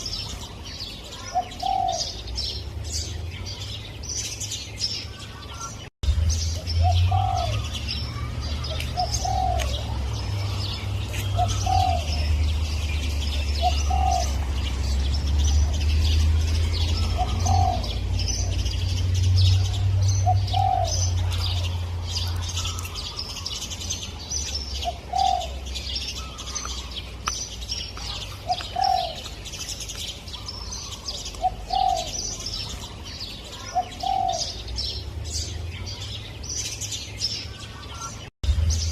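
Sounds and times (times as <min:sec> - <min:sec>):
small birds chirping: 0:00.0 - 0:38.9
dove cooing: 0:01.1 - 0:02.3, 0:06.8 - 0:12.5, 0:13.3 - 0:14.6, 0:16.5 - 0:18.7, 0:19.4 - 0:22.9, 0:24.8 - 0:26.5, 0:28.0 - 0:29.4, 0:30.4 - 0:32.8, 0:33.6 - 0:34.7.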